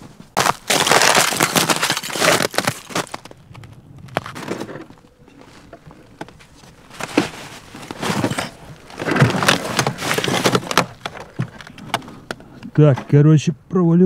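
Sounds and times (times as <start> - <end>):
footsteps crunching through snow: 0.0 - 10.6.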